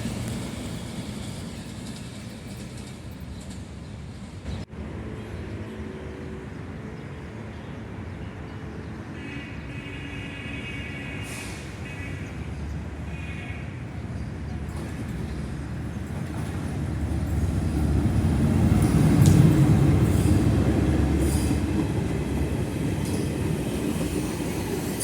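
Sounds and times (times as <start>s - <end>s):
train rumbling: 0.0s - 9.7s, 11.0s - 25.0s.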